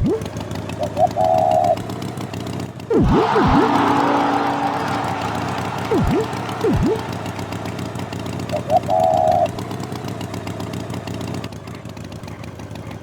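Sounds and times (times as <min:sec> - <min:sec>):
engine running: 0:00.0 - 0:13.0
held horn-like note: 0:02.9 - 0:09.5.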